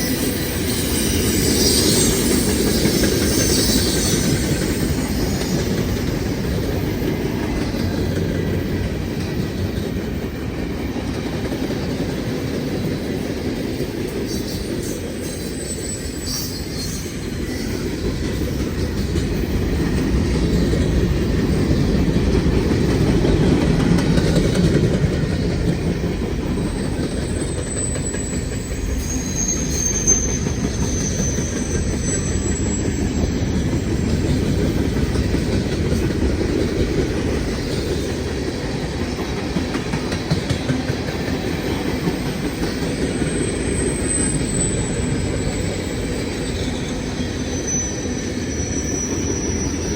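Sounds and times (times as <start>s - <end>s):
high wheel squeals: 0.0s - 7.2s, 14.2s - 22.8s, 25.2s - 36.3s, 41.3s - 49.9s
clickety-clack over rail joints: 0.0s - 49.9s
train wheels rumbling on rails: 0.0s - 49.9s.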